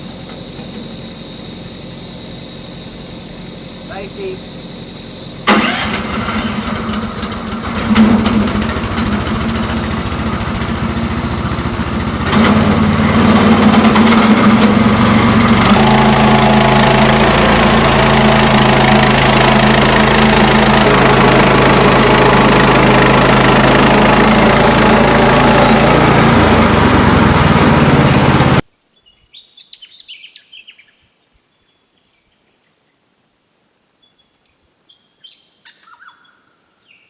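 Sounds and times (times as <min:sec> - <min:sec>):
small petrol engine running: 0:05.4 - 0:28.6.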